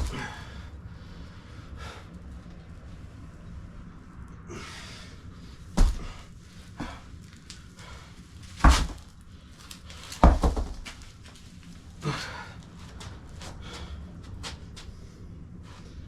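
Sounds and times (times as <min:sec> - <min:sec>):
heavy thuds: 0:05.6 - 0:11.3.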